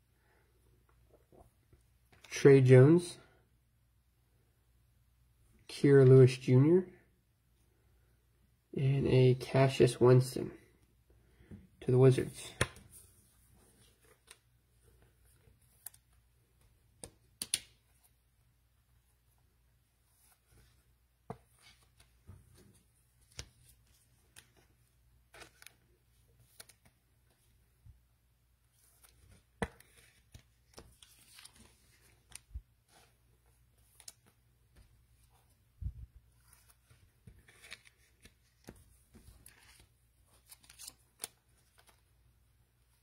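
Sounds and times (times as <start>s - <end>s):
cards clicking when handled: 17.0s - 17.8s
cards rustling: 20.0s - 27.7s, 28.6s - 43.0s.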